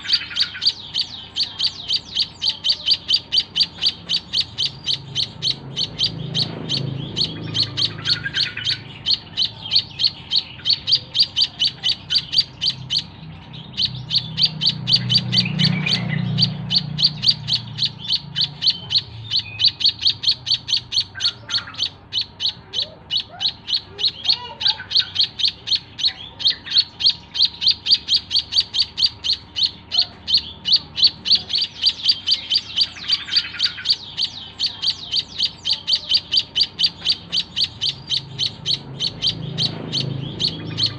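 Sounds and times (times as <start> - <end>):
bird chirping high notes: 0.0 - 40.9.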